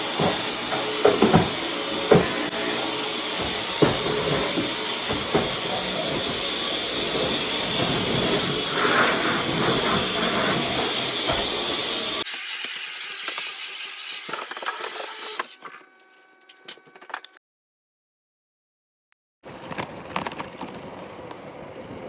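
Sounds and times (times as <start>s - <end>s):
welding hissing and crackling: 0.0s - 15.4s.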